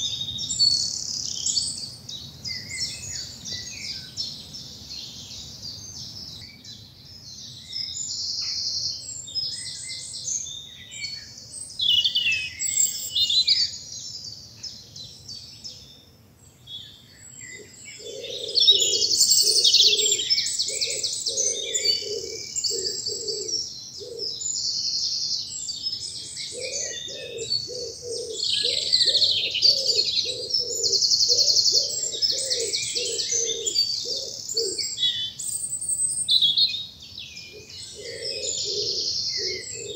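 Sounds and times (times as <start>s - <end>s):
songbirds singing: 0.0s - 39.9s
pigeon cooing: 18.0s - 24.4s, 26.5s - 34.8s, 37.9s - 39.9s.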